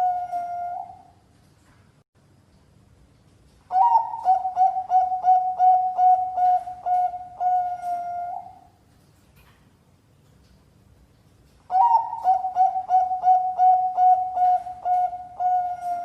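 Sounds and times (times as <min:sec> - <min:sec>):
dove cooing: 0:00.0 - 0:01.1, 0:03.7 - 0:08.8, 0:11.7 - 0:16.0.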